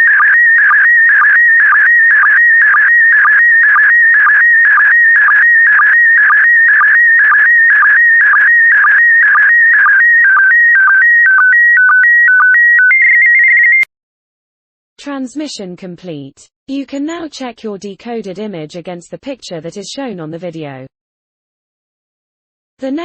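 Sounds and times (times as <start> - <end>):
stepped beeps: 0.0 - 13.9.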